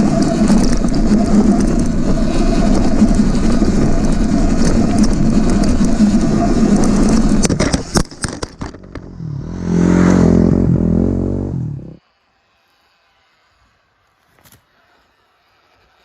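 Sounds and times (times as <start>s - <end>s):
dirt bike riding noise: 0.0s - 16.0s
motor drone: 0.0s - 16.0s
knocks and rattles: 2.9s - 9.2s.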